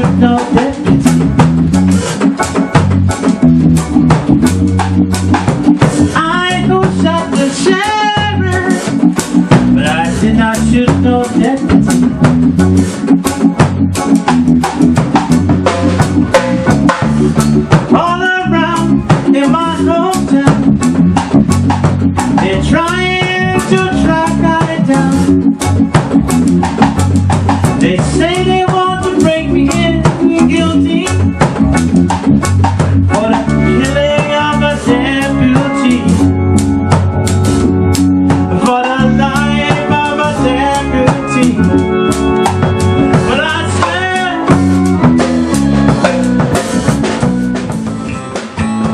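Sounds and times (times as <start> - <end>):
person singing: 0.0 - 1.3, 6.0 - 9.0, 9.6 - 12.1, 17.9 - 20.8, 22.4 - 25.4, 27.8 - 31.4, 33.1 - 36.4, 38.4 - 46.2
band playing a song: 0.0 - 48.9
drum kit with rimshots: 0.0 - 48.9.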